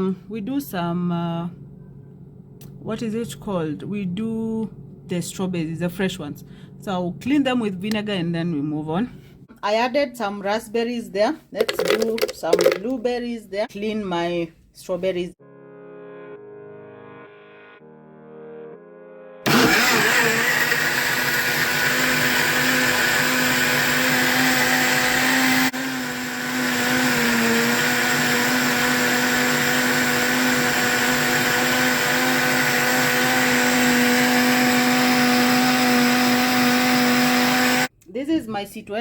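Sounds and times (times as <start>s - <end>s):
blender motor running: 11.7s - 12.8s, 19.5s - 37.9s.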